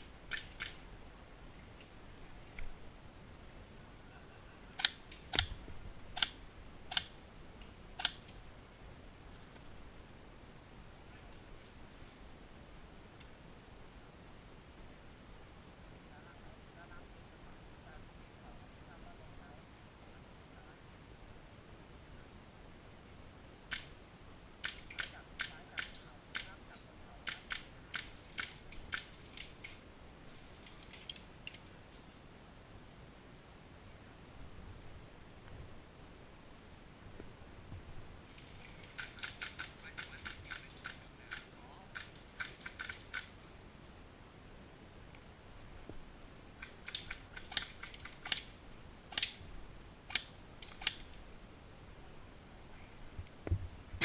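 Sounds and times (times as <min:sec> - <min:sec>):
faint hiss: 0:00.0 - 0:54.0
sharp snapping clicks: 0:00.3 - 0:00.8, 0:04.8 - 0:05.6, 0:06.2 - 0:07.2, 0:08.0 - 0:08.4, 0:23.7 - 0:24.0, 0:24.6 - 0:26.6, 0:27.2 - 0:29.8, 0:46.6 - 0:49.4, 0:50.1 - 0:51.2.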